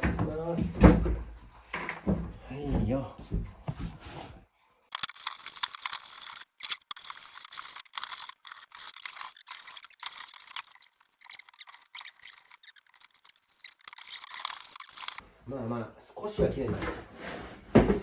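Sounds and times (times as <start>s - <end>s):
rag rubbing wooden floorboards: 5.2s - 15.2s, 16.8s - 18.0s.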